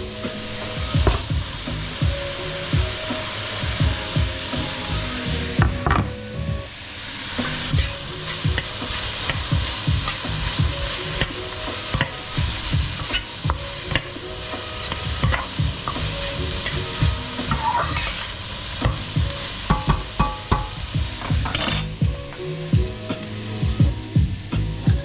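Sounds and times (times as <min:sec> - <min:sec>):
food sizzling in a frying pan: 0:00.0 - 0:25.0
utensil scraping a pan: 0:07.4 - 0:22.0.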